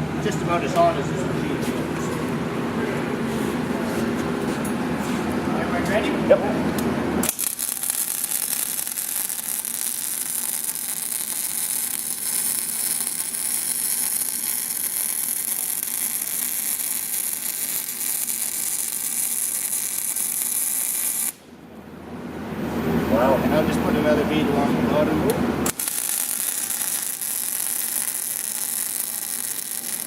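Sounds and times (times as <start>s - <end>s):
welding arc hissing: 7.2s - 21.4s, 25.7s - 30.0s.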